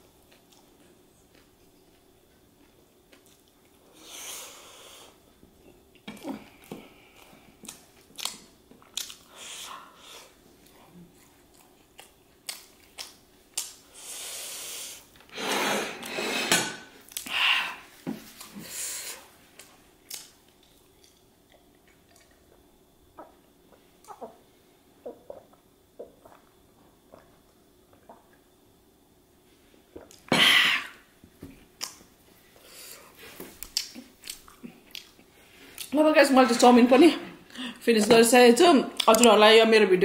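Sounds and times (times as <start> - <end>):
person chewing meat: 0.2 - 3.8, 7.1 - 9.4, 10.6 - 13.7, 19.6 - 23.3, 33.6 - 35.9
wet mouth clicks and smacks: 7.6 - 9.3, 19.6 - 22.4, 31.8 - 32.0, 33.6 - 35.2.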